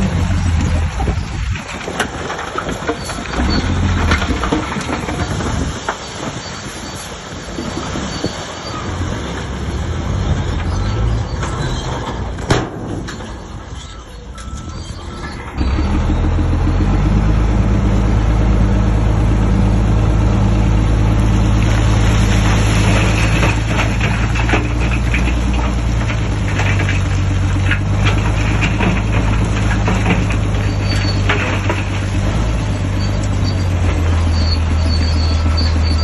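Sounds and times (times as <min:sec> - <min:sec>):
bulldozer diesel engine running: 0:00.0 - 0:12.4, 0:13.1 - 0:36.0
metal clanking and rattling: 0:22.4 - 0:34.2.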